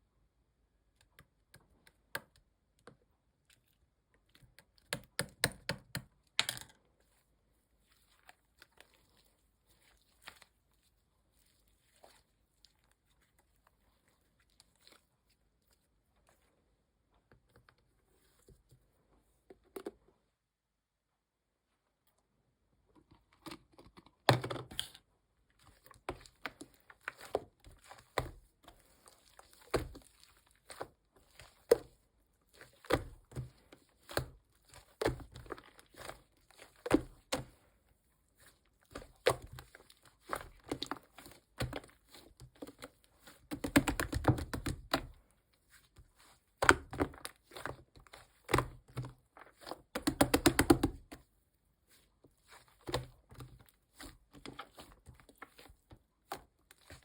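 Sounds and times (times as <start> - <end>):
slime squished by hand: 25.6 - 37.6.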